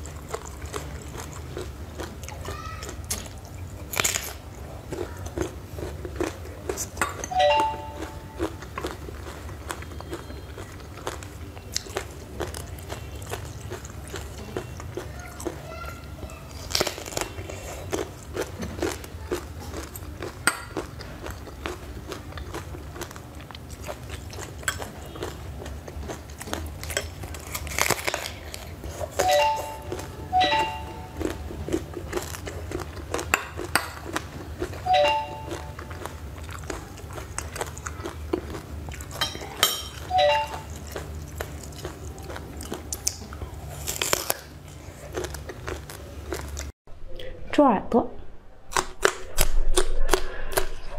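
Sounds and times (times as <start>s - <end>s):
crunchy biting and chewing: 0.0s - 7.3s, 8.0s - 30.2s, 31.0s - 46.7s.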